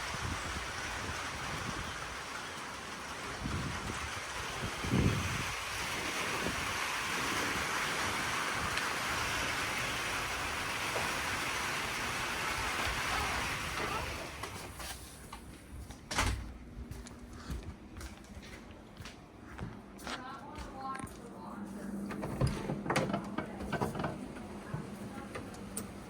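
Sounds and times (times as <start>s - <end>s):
strong wind rushing: 3.3s - 6.8s.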